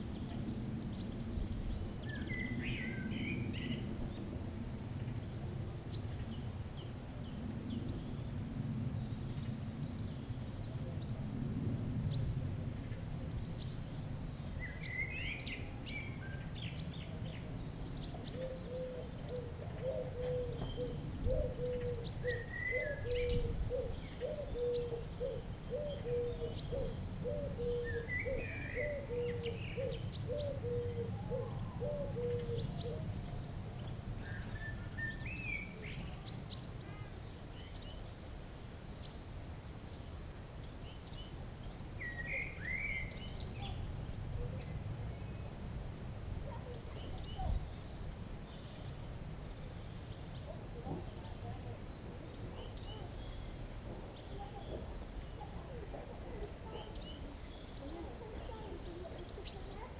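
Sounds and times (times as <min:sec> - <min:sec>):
steady low rumble: 0:00.0 - 0:18.5
small birds chirping: 0:00.0 - 0:59.9.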